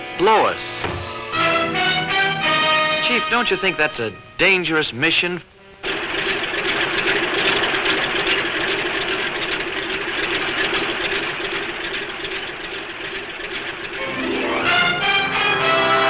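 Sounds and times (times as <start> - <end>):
motor engine droning: 5.5 - 16.0.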